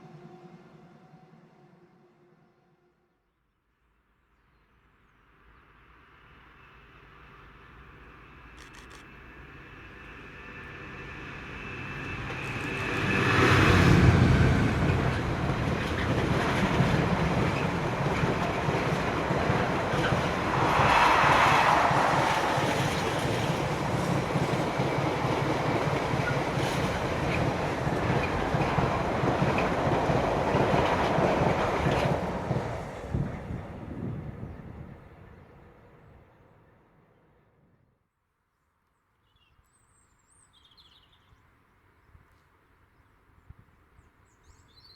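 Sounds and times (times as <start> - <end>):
train rumbling and clattering past: 5.8 - 37.7.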